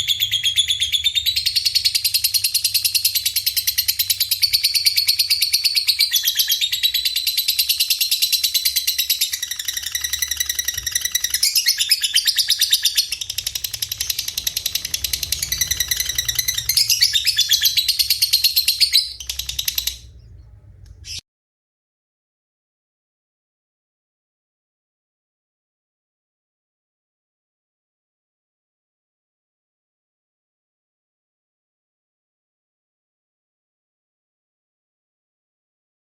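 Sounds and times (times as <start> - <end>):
birds twittering trills: 0.0 - 21.2.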